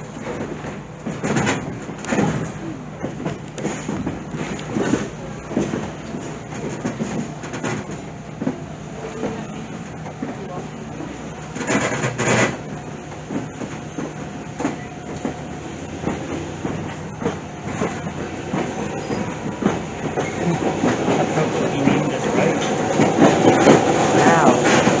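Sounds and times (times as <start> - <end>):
train rumble: 0.0 - 25.0
wheel clacks over rail joints: 0.0 - 25.0.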